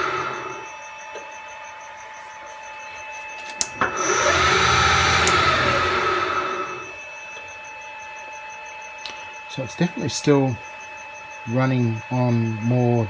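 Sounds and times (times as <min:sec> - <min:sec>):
electric motor whining and braking: 0:00.0 - 0:00.7, 0:03.5 - 0:07.0.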